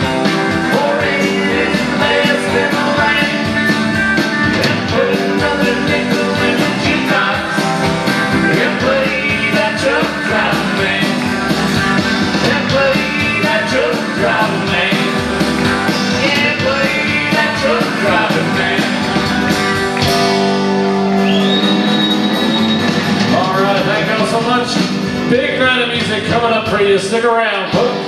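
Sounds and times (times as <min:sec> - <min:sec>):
country-rock band playing: 0:00.0 - 0:28.0
drums: 0:00.0 - 0:28.0
guitar: 0:00.0 - 0:28.0
person singing: 0:00.5 - 0:03.7, 0:04.5 - 0:11.2, 0:12.4 - 0:15.2, 0:16.0 - 0:19.1.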